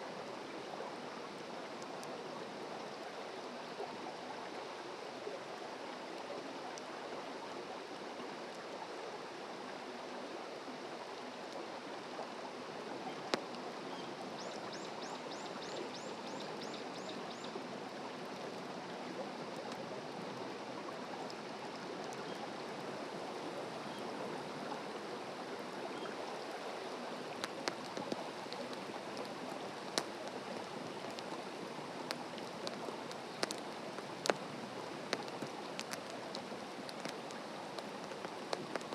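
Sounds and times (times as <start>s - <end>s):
stream water running: 0.0s - 38.9s
campfire crackling and popping: 27.2s - 38.9s.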